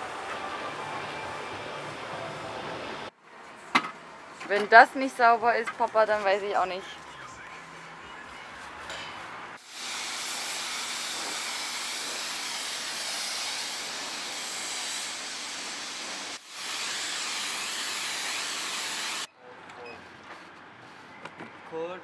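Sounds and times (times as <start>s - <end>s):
pressure washer spraying water: 9.6s - 19.3s.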